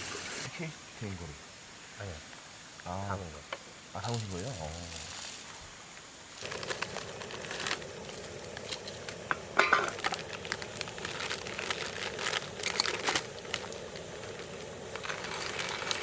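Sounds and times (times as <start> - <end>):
crinkling: 6.4 - 16.0.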